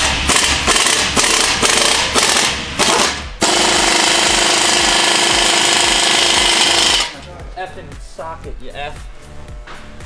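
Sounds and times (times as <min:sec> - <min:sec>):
air impact wrench hammering: 0:00.0 - 0:07.2.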